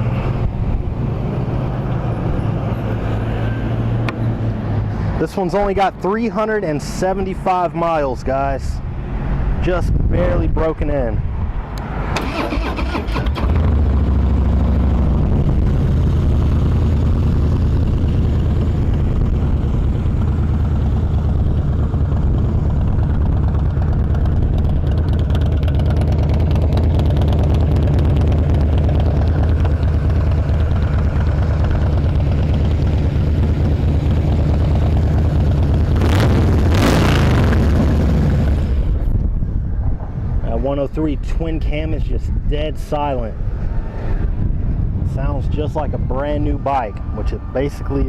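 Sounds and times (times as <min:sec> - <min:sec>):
engine throttle blips: 0:11.6 - 0:40.6
motorcycle engine idling: 0:13.6 - 0:35.9.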